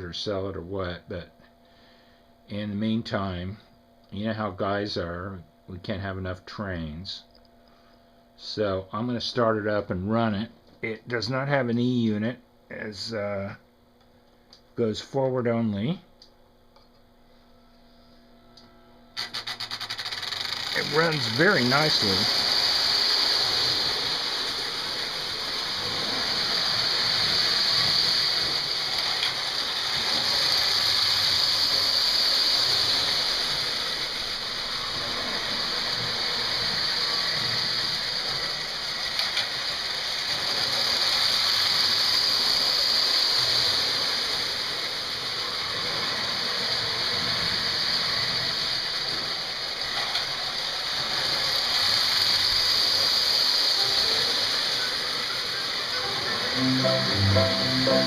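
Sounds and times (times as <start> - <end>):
toy train motor whirring: 19.2 - 56.5.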